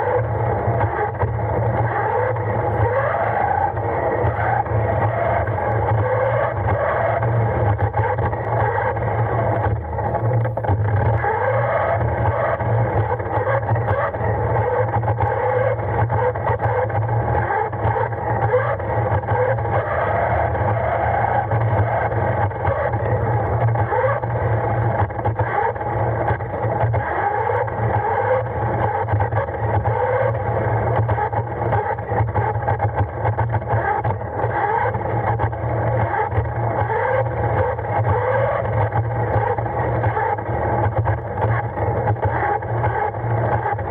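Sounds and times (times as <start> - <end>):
toy car motor whine: 0.0 - 32.8.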